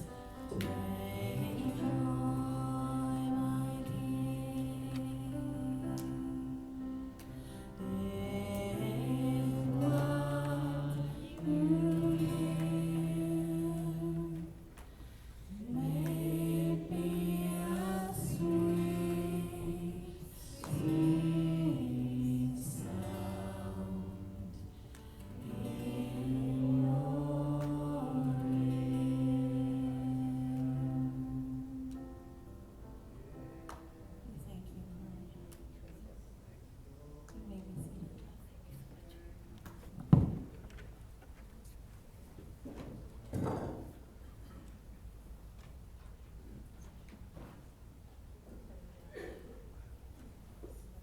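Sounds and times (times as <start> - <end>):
slow church worship singing: 0.0 - 36.2.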